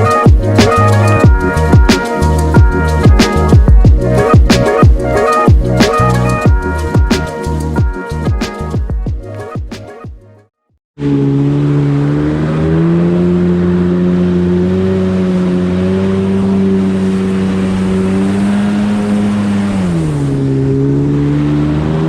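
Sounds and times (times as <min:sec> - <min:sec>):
jet ski engine running: 0:00.0 - 0:08.4, 0:11.0 - 0:22.0
water rushing: 0:11.0 - 0:22.0.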